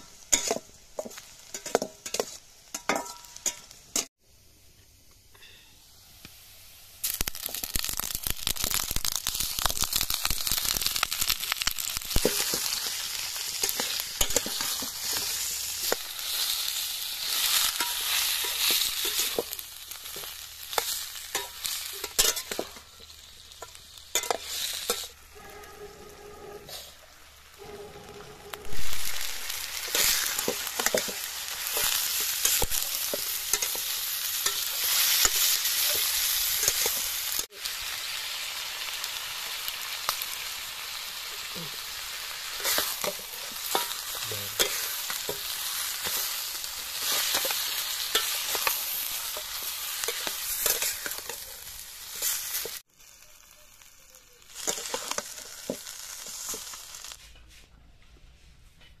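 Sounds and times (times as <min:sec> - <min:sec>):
food sizzling loudly in oil: 0:00.0 - 0:04.1, 0:05.8 - 0:57.2
spatula stirring and scraping pan: 0:00.0 - 0:04.1, 0:11.4 - 0:37.5, 0:40.9 - 0:52.8, 0:54.5 - 0:57.2.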